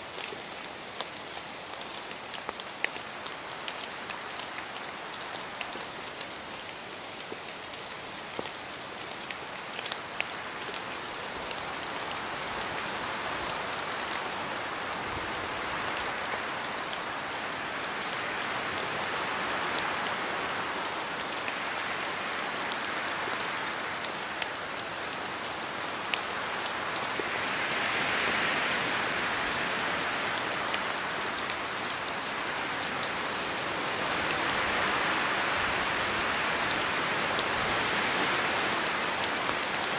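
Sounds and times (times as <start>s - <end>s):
raindrops ticking: 0.0s - 12.1s
rain falling: 0.0s - 39.9s.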